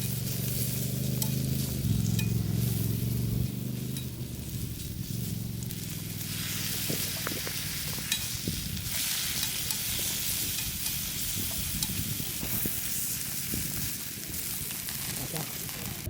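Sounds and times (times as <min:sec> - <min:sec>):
mushrooms sizzling in butter: 0:00.0 - 0:16.0.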